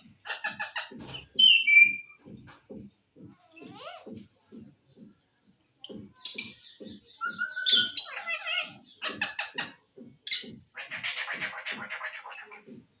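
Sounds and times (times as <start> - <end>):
parrot chirps and whistles: 1.4 - 2.2.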